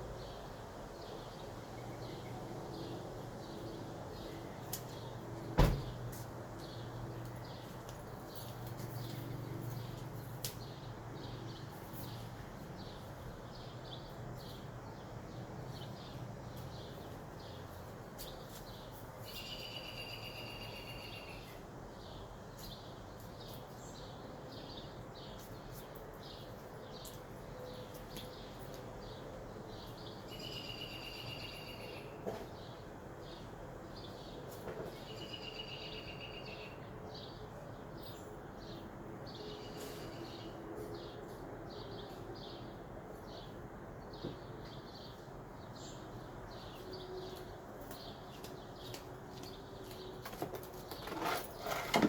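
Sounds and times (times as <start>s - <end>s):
outdoor background noise: 0.0s - 52.0s
bird trills: 19.3s - 21.5s, 30.3s - 32.0s.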